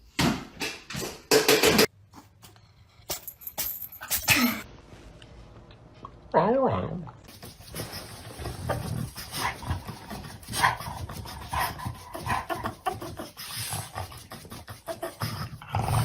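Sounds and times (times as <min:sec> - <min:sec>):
dog panting and whining: 0:07.4 - 0:16.0.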